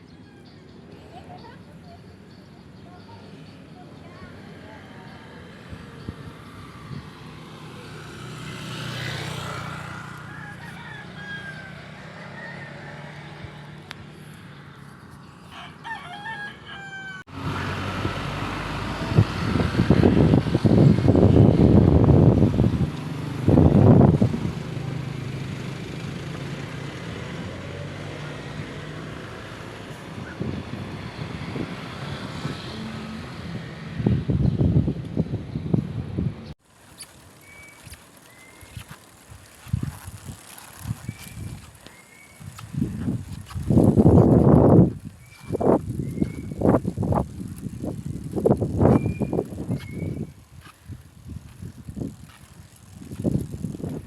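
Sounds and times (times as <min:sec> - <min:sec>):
vehicle passing by: 0:04.4 - 0:16.4, 0:17.3 - 0:54.0
wind gusting on microphone: 0:05.3 - 0:12.5, 0:17.4 - 0:25.6, 0:28.5 - 0:54.0.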